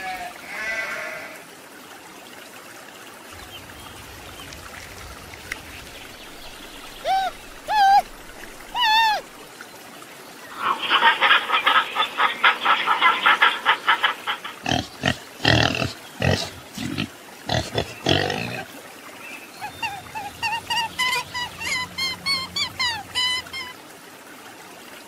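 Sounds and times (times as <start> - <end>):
pig grunting: 14.6 - 18.7.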